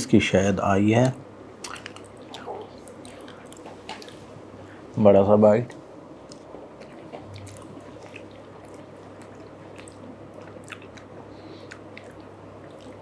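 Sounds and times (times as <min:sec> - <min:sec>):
steady low hum: 0:00.0 - 0:13.0
wet mouth eating sounds: 0:01.6 - 0:04.2, 0:06.2 - 0:13.0.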